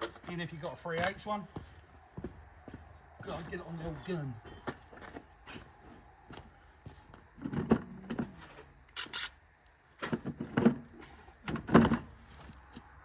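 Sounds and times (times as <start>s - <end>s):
metal tools clinking and clattering: 0.0s - 1.2s.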